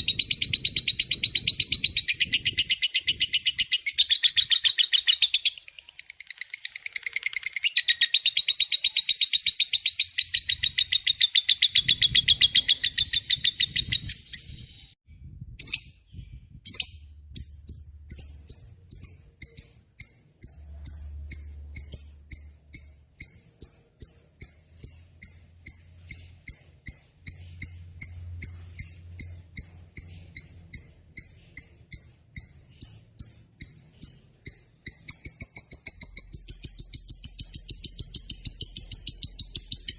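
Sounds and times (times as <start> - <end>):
bird high-pitched trill: 0.0 - 15.0, 15.6 - 39.9
bird sharp high chirps: 0.0 - 15.0, 15.6 - 39.9.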